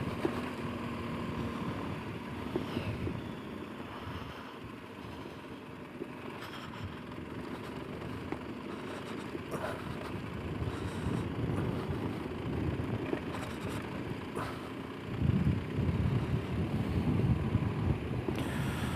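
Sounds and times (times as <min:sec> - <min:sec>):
motorcycle engine running: 0:00.0 - 0:18.9
wind on microphone: 0:15.1 - 0:18.9.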